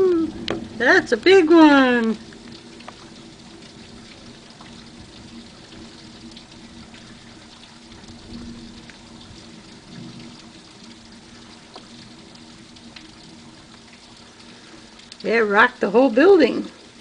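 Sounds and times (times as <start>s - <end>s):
rain falling: 0.0s - 17.0s
water drips and splashes: 0.0s - 17.0s.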